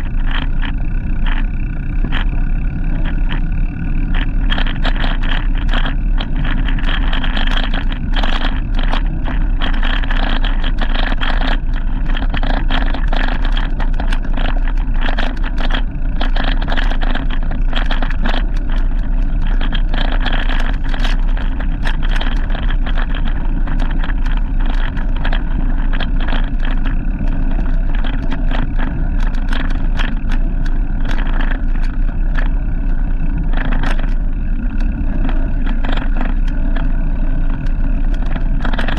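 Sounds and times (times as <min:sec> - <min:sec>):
heavy low rumble: 0:00.0 - 0:38.9
road noise from moving bike: 0:00.0 - 0:38.9
wind noise: 0:00.0 - 0:38.9
short clicks and rattles: 0:04.0 - 0:38.9.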